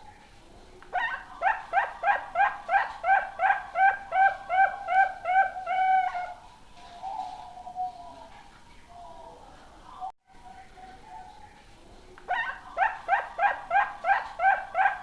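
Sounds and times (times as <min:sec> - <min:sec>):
dove cooing: 0:01.0 - 0:08.3.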